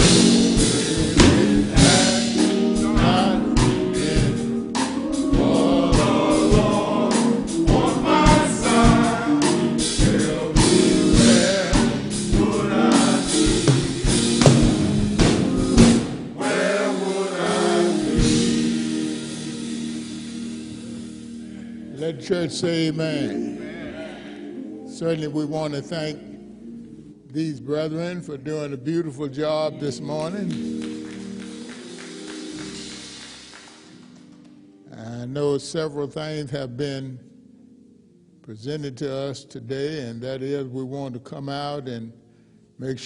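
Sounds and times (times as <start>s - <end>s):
steady drum beat: 0.0s - 20.4s
band accompaniment: 0.0s - 23.4s, 29.8s - 34.8s
gospel choir singing: 0.0s - 27.2s.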